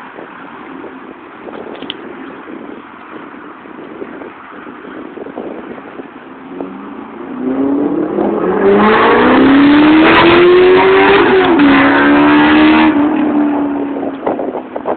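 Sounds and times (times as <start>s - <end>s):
sports car accelerating past: 6.5s - 14.3s.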